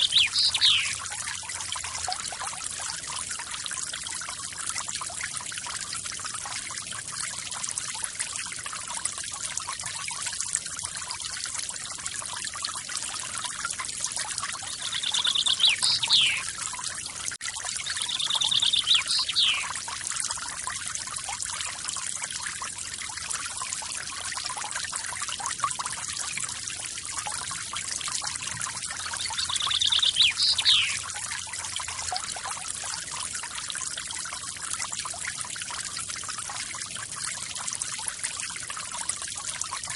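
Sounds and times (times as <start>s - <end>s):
bird trilling and whistling: 0.0s - 1.0s, 14.8s - 16.4s, 17.9s - 19.7s, 29.2s - 31.0s.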